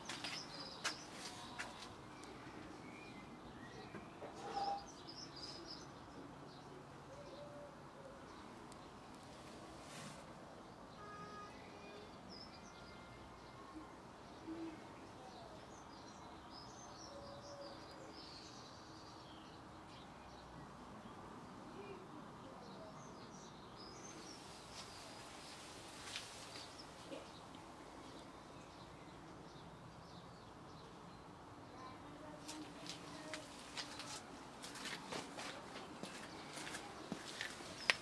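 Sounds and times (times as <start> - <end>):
songbird chirps and calls: 0.0 - 10.0, 10.6 - 38.0
low steady hiss: 5.0 - 34.7.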